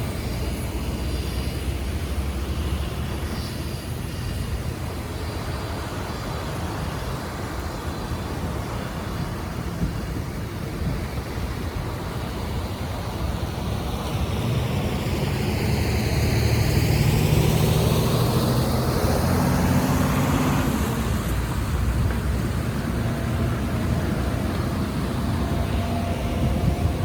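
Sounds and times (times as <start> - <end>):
steady rushing noise: 0.0 - 27.0
vehicle passing by: 14.1 - 27.0.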